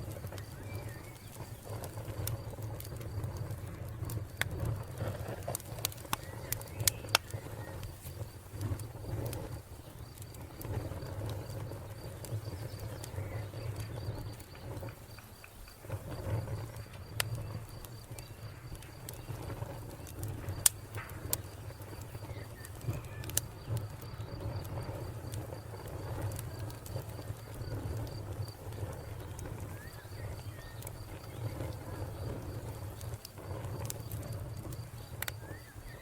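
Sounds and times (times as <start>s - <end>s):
wood fire crackling: 0.0s - 36.0s
cricket chirping: 6.0s - 36.0s.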